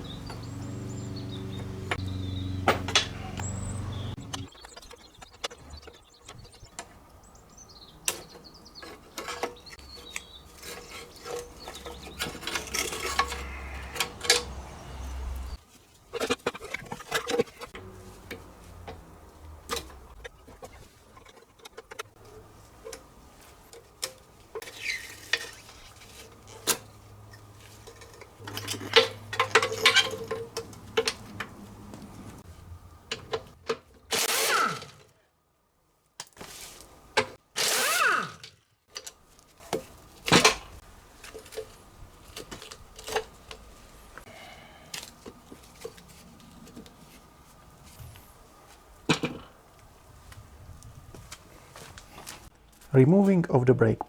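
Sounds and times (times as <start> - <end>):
hand tools clicking on metal: 8.1 - 15.6.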